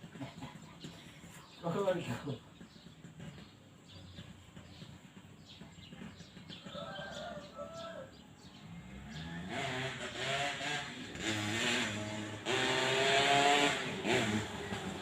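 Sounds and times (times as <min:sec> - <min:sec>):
two-stroke motorcycle engine revving: 0:08.5 - 0:15.0.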